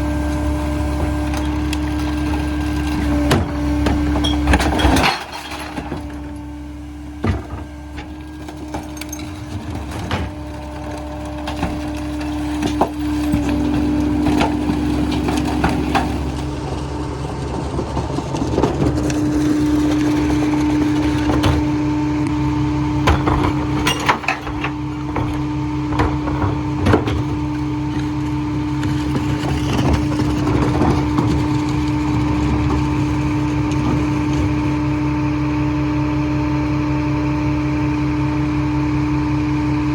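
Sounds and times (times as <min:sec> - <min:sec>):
garbage truck engine running: 0:00.0 - 0:39.9
hydraulic whine: 0:00.0 - 0:39.9.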